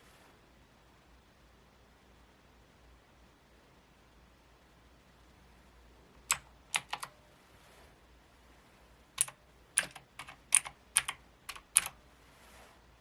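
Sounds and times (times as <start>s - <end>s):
mechanical keyboard key clicks: 6.3s - 7.1s, 9.2s - 12.0s.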